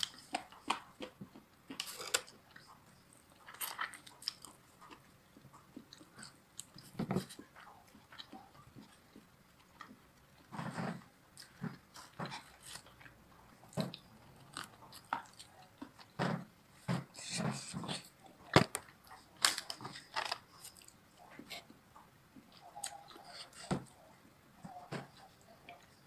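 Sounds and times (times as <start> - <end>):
crunching fried chicken: 0.0 - 16.2.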